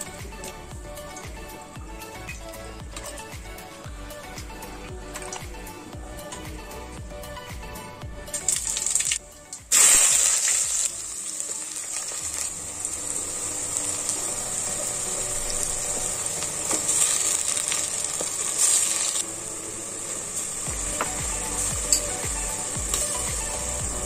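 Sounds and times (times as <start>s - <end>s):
onions sizzling in hot oil: 8.3s - 24.0s.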